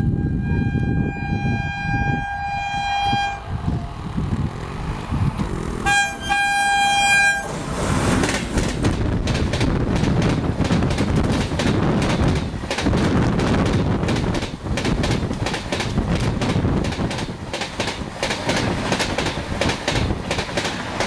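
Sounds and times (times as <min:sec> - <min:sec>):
train horn blasts: 0:00.0 - 0:03.5, 0:05.8 - 0:07.6
train wheels clacking on rail joints: 0:05.4 - 0:21.0.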